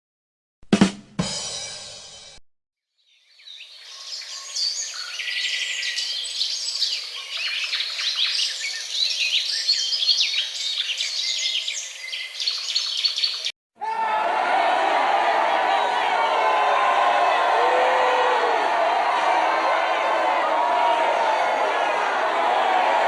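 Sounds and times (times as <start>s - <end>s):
small birds chirping: 3.0s - 13.5s.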